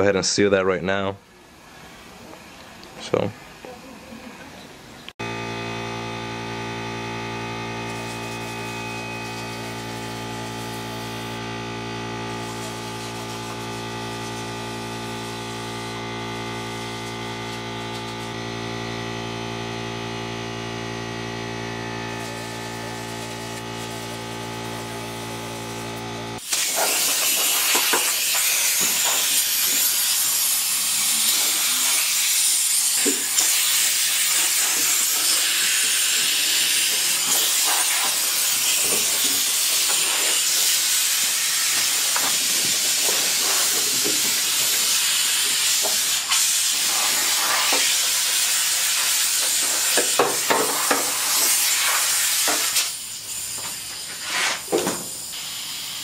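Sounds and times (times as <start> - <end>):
steady hum: 3.5 - 47.8
power sander grinding metal: 5.2 - 52.8.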